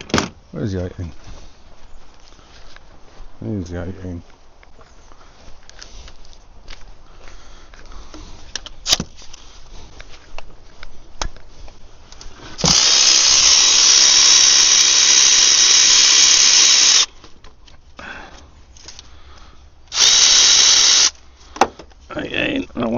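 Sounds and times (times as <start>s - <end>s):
cordless power tool spinning: 12.6s - 17.1s, 19.9s - 21.2s.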